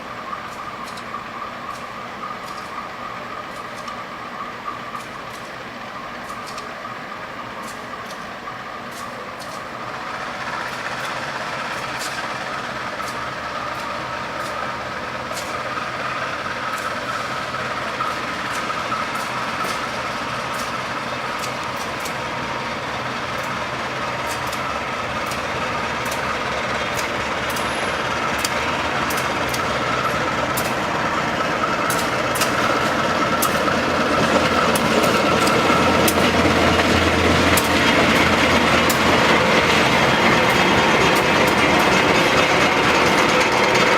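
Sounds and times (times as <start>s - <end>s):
train rumbling on rails: 0.0s - 43.9s
sharp ticks: 23.4s - 31.0s.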